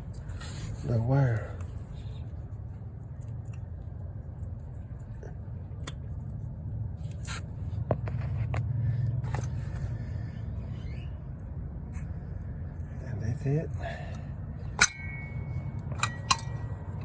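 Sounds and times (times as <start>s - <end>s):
hand tools clicking on metal: 14.8s - 17.0s.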